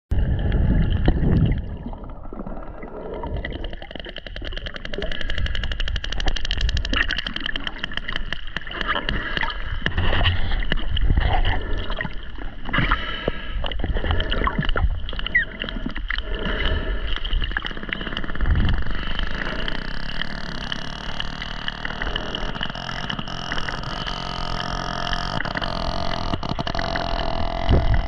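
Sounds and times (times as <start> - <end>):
low underwater rumble: 0.1 - 28.0
whale echolocation clicks: 3.2 - 11.1, 12.9 - 28.0.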